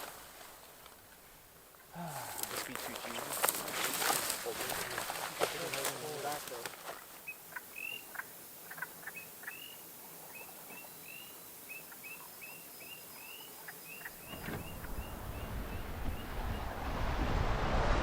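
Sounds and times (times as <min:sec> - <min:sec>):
rushing noise: 0:14.3 - 0:18.0.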